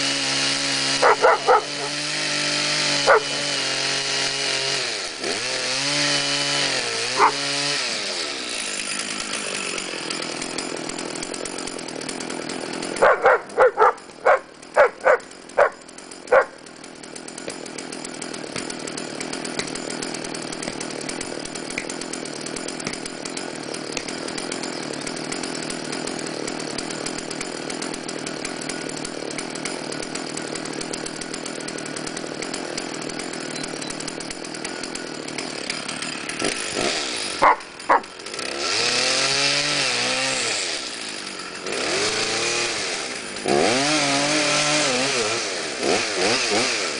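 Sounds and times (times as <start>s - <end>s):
chainsaw cutting wood: 0.0s - 46.9s
dog barking: 1.0s - 1.9s, 3.1s - 3.3s, 7.2s - 7.4s, 13.0s - 16.6s, 37.4s - 38.1s.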